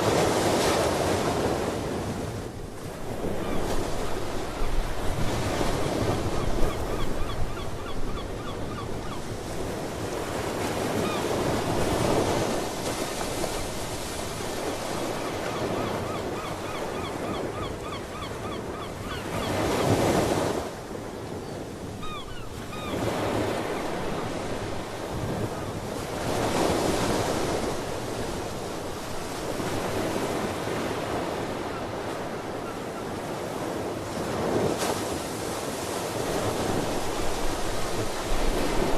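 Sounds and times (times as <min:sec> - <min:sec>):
seabirds chirping: 0:15.2 - 0:19.8, 0:21.4 - 0:23.9.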